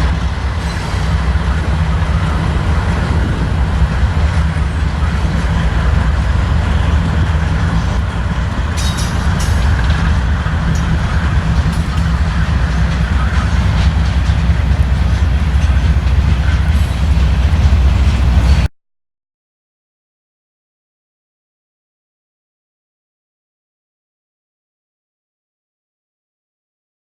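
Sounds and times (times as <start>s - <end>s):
train rumbling by: 0.0s - 18.7s
wheel clicks over rails: 4.0s - 18.7s.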